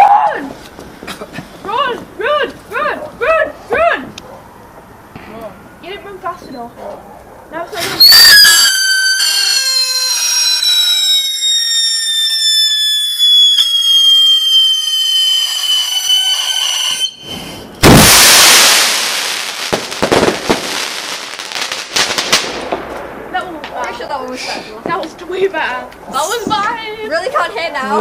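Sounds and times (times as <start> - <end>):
firework whistling: 8.0 - 22.6
firework crackling: 8.0 - 25.6
firework bang: 13.5 - 25.0.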